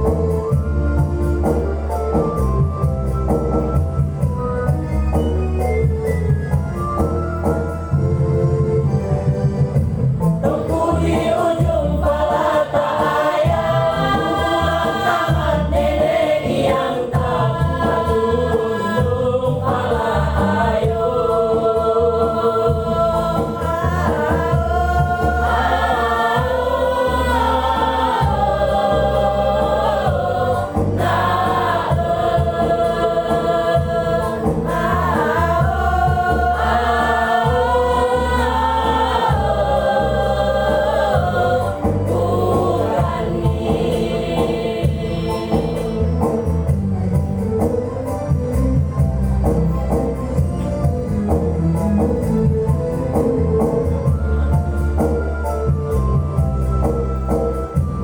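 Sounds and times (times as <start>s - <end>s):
choir singing in harmony: 10.0s - 47.8s.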